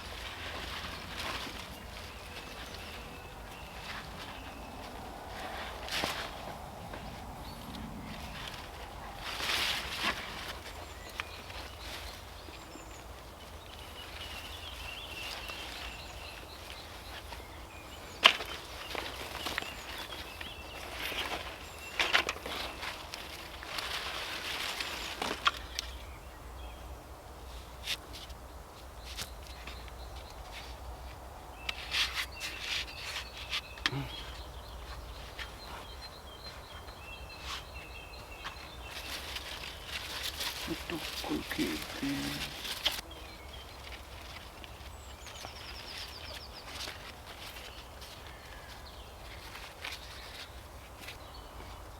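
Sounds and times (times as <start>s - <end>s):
songbirds chirping: 0.0s - 51.9s
rustling and clicking: 18.2s - 26.0s
rustling handling: 29.1s - 51.3s.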